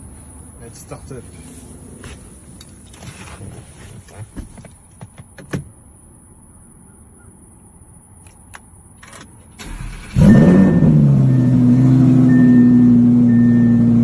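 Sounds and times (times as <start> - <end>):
car engine cranking: 9.0 - 14.0
car engine revving and idling: 9.6 - 14.0.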